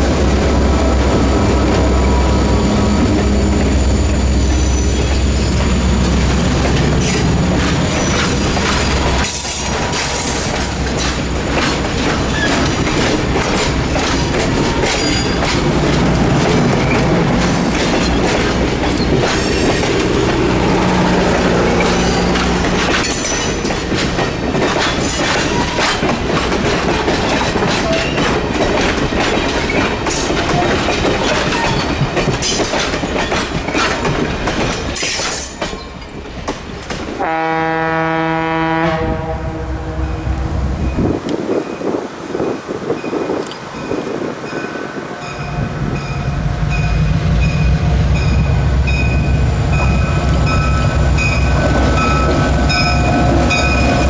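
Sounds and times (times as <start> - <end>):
train wheels clicking over rail joints: 5.0 - 37.2
train horn: 37.2 - 40.6.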